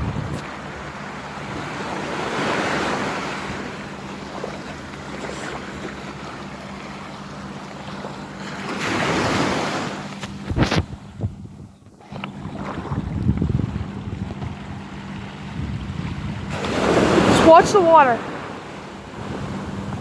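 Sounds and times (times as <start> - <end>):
wind on microphone: 0.0 - 3.9, 8.9 - 20.0
sea waves washing ashore: 0.0 - 11.3, 12.0 - 20.0.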